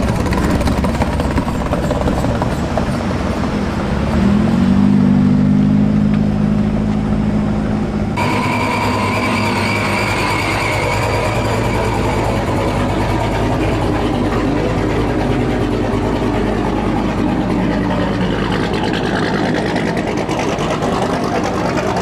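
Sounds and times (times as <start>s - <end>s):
traffic rumble: 0.0s - 22.0s
vehicle engine revving: 0.0s - 22.0s
high steady tone: 8.2s - 19.0s.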